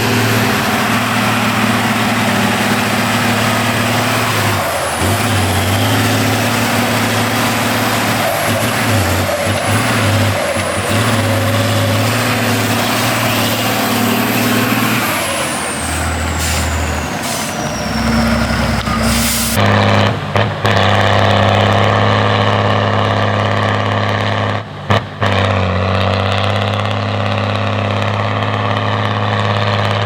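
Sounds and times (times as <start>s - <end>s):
diesel truck engine droning: 0.0s - 30.0s
short hisses: 16.3s - 17.8s, 18.9s - 19.6s.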